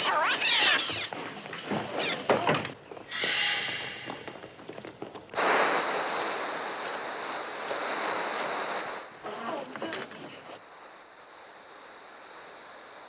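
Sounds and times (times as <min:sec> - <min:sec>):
seagull cries: 0:03.1 - 0:04.3
loud steady hissing rush: 0:03.1 - 0:13.0.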